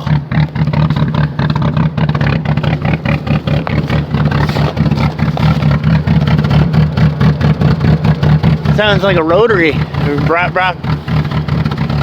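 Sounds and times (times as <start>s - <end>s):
car engine running rough: 0.0s - 12.0s.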